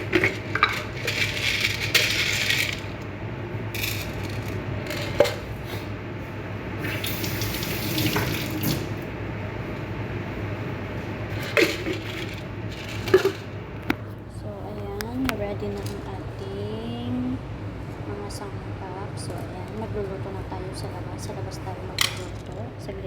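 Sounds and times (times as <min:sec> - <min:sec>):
tap water running into sink: 0:06.8 - 0:09.0.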